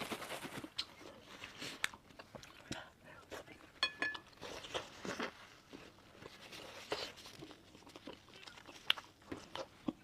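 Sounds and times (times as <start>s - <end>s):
mouth chewing meat: 4.4s - 10.0s.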